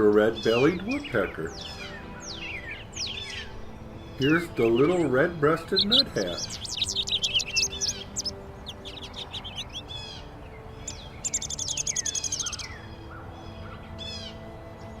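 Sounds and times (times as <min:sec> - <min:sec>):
songbirds chirping: 0:00.0 - 0:15.0
fast high bird trill: 0:04.2 - 0:13.2.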